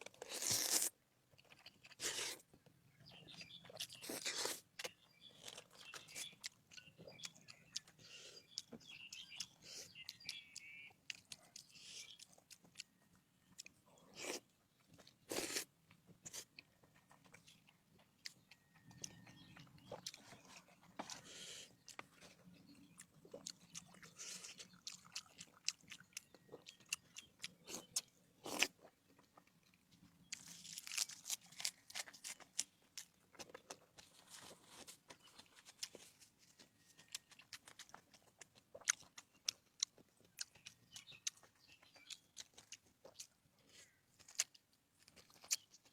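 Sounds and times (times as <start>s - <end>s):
crunchy chewing: 0.0s - 45.9s.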